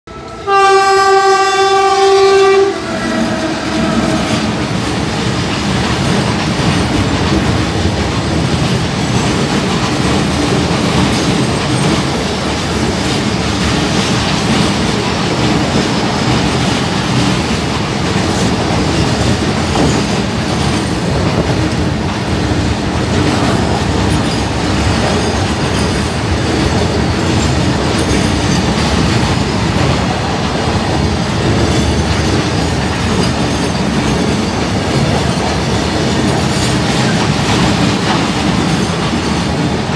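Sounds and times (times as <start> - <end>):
locomotive horn blast: 0.1 - 4.7
freight train rumbling past: 0.1 - 39.9.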